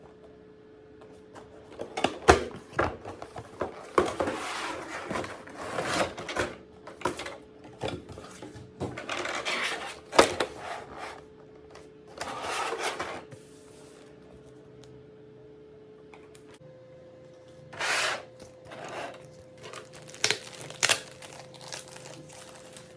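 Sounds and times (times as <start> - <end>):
faint steady hum: 0.0 - 22.9
packaging rustling: 18.7 - 22.9.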